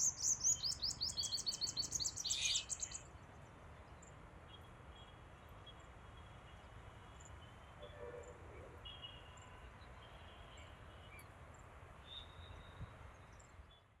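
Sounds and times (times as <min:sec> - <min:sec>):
high bird chirps: 0:00.0 - 0:02.9.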